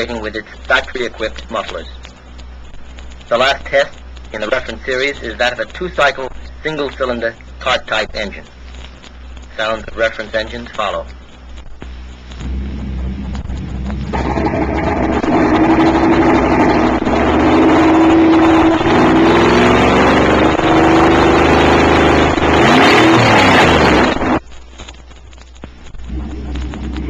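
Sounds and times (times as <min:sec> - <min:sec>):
quieter car engine starting: 0:12.3 - 0:24.4, 0:26.0 - 0:27.0
loud car engine revving: 0:12.4 - 0:24.4, 0:26.1 - 0:27.0.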